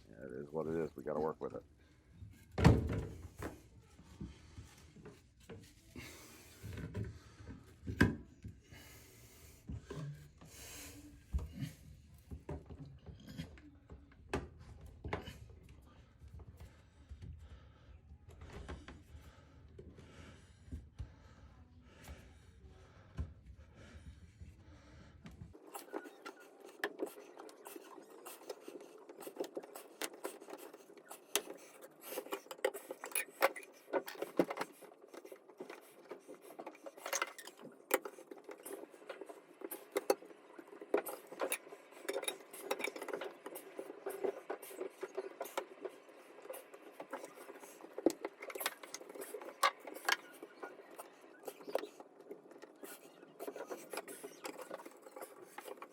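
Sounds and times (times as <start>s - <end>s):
tools and drain parts clicking: 25.6s - 45.7s.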